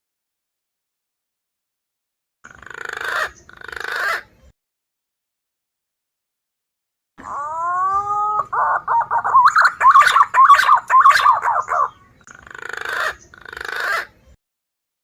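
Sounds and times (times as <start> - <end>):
pigeon whistling calls: 7.3 - 12.2.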